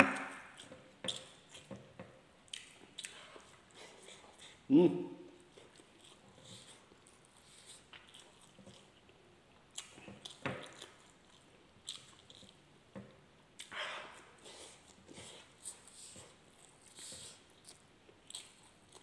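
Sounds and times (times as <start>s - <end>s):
man chewing food: 0.0s - 4.7s, 5.3s - 19.0s
wet mouth clicks and smacks: 2.5s - 3.3s.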